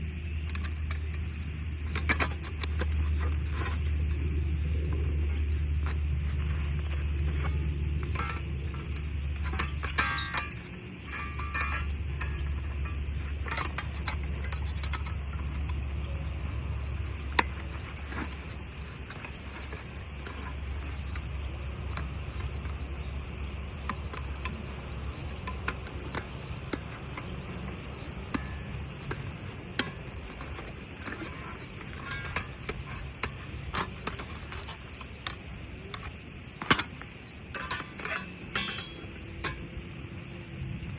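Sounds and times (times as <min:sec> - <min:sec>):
crickets chirping: 0:00.0 - 0:40.9
sharp clicks and knocks: 0:00.4 - 0:22.9, 0:23.7 - 0:39.7.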